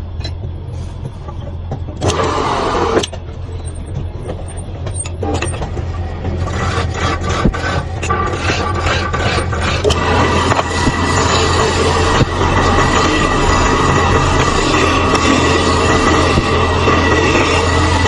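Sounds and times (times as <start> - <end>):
tool scraping spinning wood: 2.0 - 18.0
wood lathe humming: 6.2 - 18.0.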